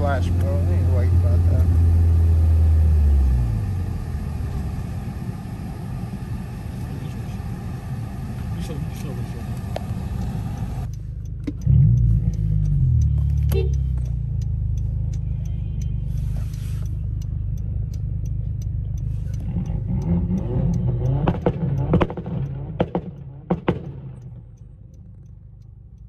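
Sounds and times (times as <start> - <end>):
car engine running and revving: 0.0 - 26.0
light ticking: 8.3 - 26.0.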